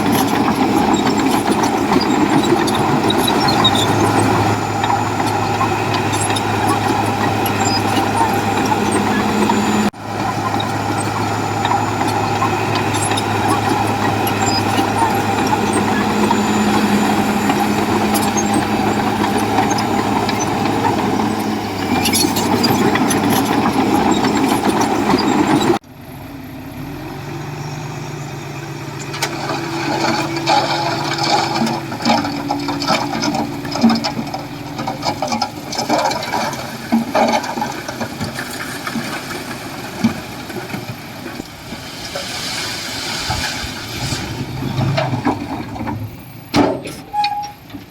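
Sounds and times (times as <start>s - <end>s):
heavy diesel engine drone: 0.0s - 47.7s
clanks and rattles: 29.2s - 42.3s, 43.3s - 47.9s.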